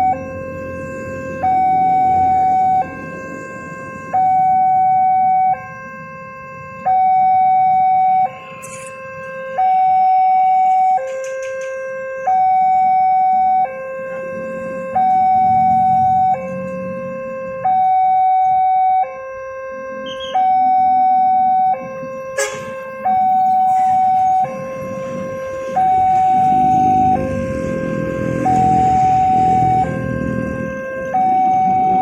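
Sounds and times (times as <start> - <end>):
level crossing two-tone alarm: 0.0 - 32.0.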